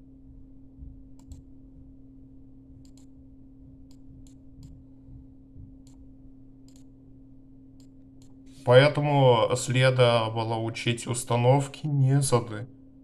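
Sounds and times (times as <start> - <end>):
low electrical hum: 0.0 - 13.0
small sharp clicks: 6.6 - 6.9.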